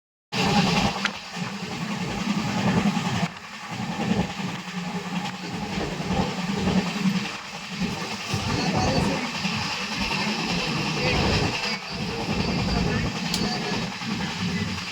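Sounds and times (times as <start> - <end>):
heavy rain hissing: 0.4 - 14.9.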